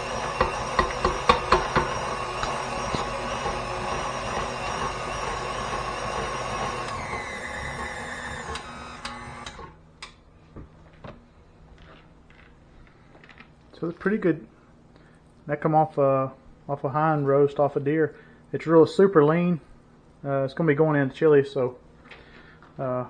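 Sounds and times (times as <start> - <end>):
stand mixer motor whining: 0.0 - 9.8.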